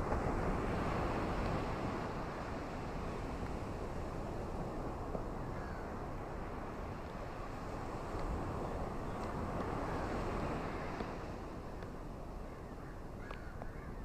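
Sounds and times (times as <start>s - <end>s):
ocean surf: 0.0s - 14.0s
wind: 0.0s - 14.0s.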